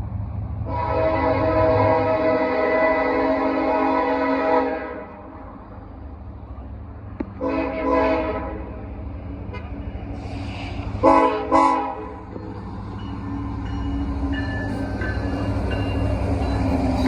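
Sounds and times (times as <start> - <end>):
train on rails: 0.0 - 17.0
locomotive air horn blasts: 0.6 - 5.2, 7.4 - 8.8, 11.0 - 12.2.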